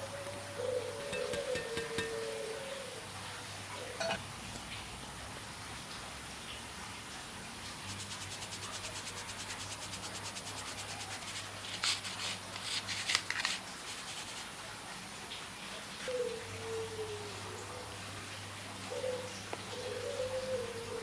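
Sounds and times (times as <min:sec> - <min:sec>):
utensil scraping mixing bowl: 0:01.1 - 0:02.3, 0:07.9 - 0:14.5.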